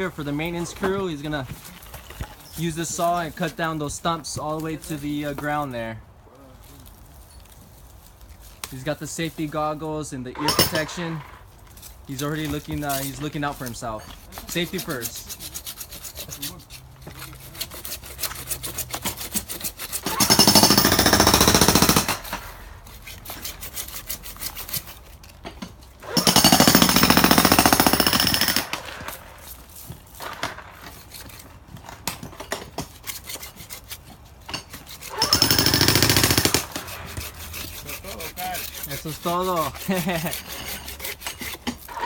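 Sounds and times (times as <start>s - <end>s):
jackhammer breaking concrete: 10.4s - 11.0s, 20.1s - 22.4s, 26.0s - 29.1s, 35.1s - 36.8s.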